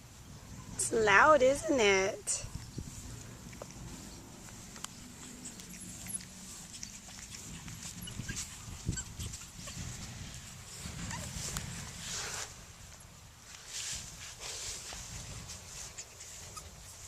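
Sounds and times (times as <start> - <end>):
noisy rustle: 0.0 - 17.0.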